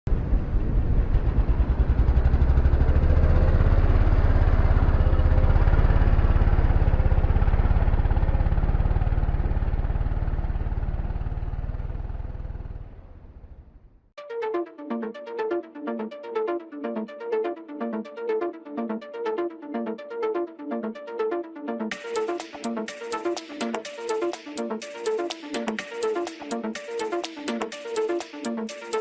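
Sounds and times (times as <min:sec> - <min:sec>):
motorcycle engine running: 0:00.4 - 0:13.7
electronic music: 0:14.2 - 0:29.0.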